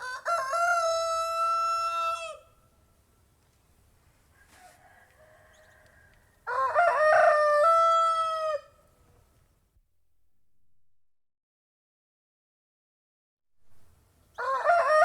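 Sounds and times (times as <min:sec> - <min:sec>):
rooster crowing: 0:00.0 - 0:02.6, 0:04.3 - 0:08.8, 0:14.4 - 0:15.0.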